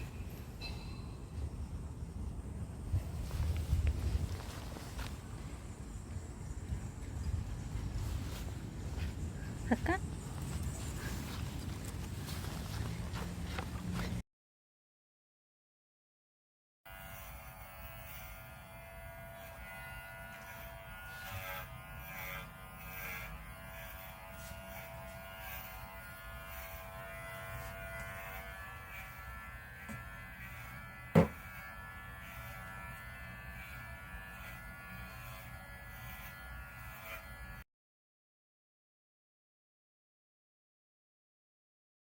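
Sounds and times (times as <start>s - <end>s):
electric hair clippers running: 16.9s - 37.6s.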